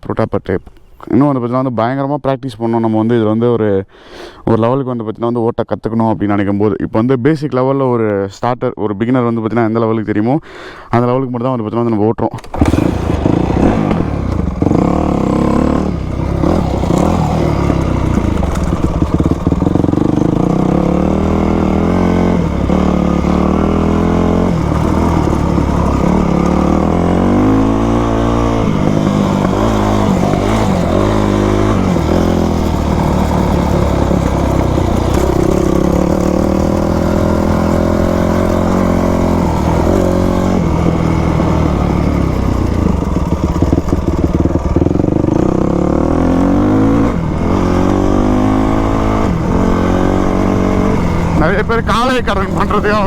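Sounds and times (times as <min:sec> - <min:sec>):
dirt bike engine revving: 0:12.4 - 0:53.0.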